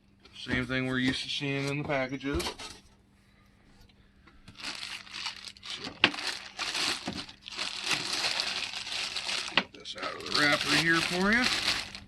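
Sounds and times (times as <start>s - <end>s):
plastic wrapping crinkling: 4.5s - 12.0s.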